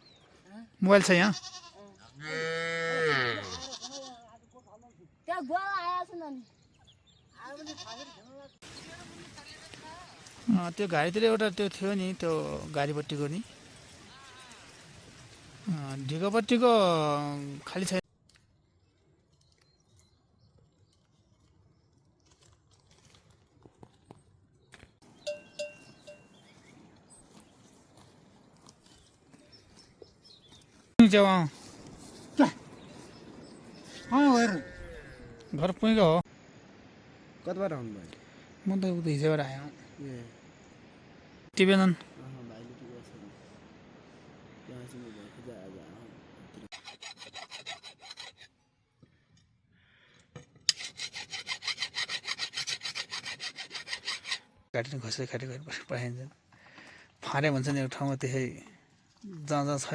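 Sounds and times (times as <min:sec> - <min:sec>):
livestock bell clanking: 0:25.2 - 0:26.4
fast rasping scraping strokes: 0:46.7 - 0:48.6, 0:50.6 - 0:54.6.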